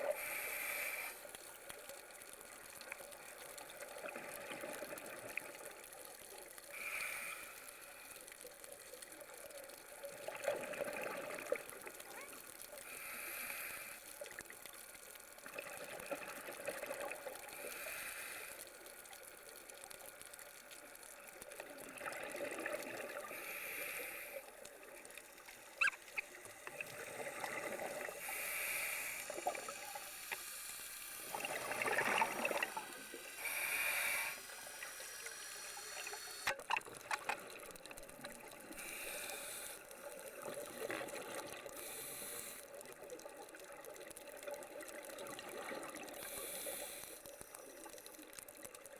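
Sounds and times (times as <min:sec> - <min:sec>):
diver breathing through regulator: 0:00.1 - 0:01.4, 0:06.7 - 0:08.2, 0:12.8 - 0:14.2, 0:17.6 - 0:18.6, 0:23.2 - 0:24.6, 0:25.8 - 0:36.5, 0:38.7 - 0:39.9, 0:41.7 - 0:42.8, 0:46.2 - 0:47.3.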